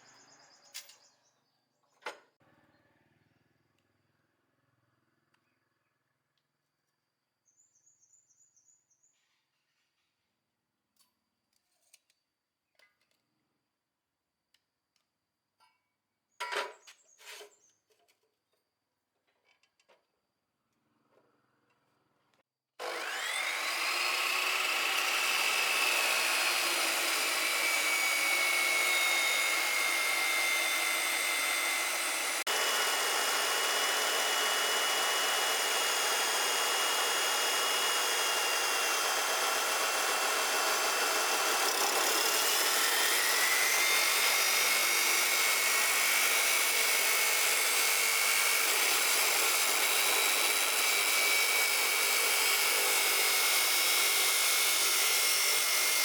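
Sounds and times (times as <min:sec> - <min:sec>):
electric power tool motor whine: 0:22.8 - 0:56.0.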